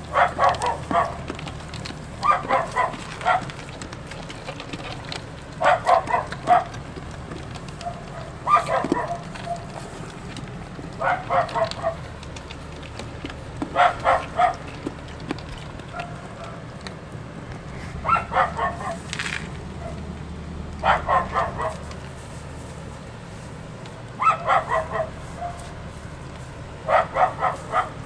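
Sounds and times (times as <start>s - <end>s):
dog barking quickly: 0.1s - 1.3s, 2.2s - 3.6s, 5.6s - 6.8s, 7.8s - 9.8s, 11.0s - 12.1s, 13.7s - 14.7s, 18.0s - 19.0s, 20.8s - 21.9s, 24.2s - 25.6s, 26.8s - 28.0s.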